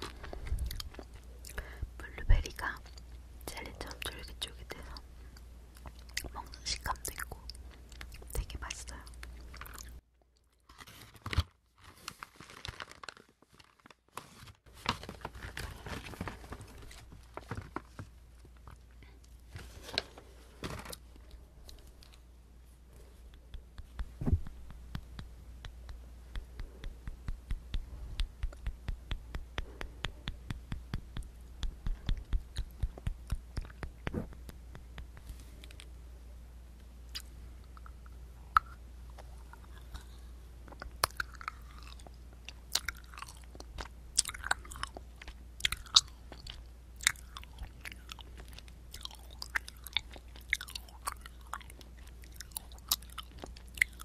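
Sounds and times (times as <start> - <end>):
chewing and crunching: 0.0 - 1.7, 9.2 - 10.6, 37.1 - 54.0
sharp mouth clicks: 23.3 - 35.9, 37.1 - 40.0.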